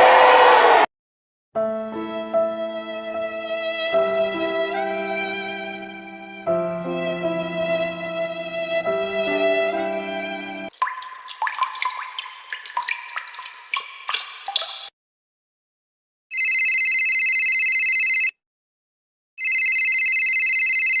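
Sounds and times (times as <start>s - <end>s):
water drips and plops: 10.7s - 14.9s
telephone ringing: 16.3s - 18.4s, 19.4s - 21.0s.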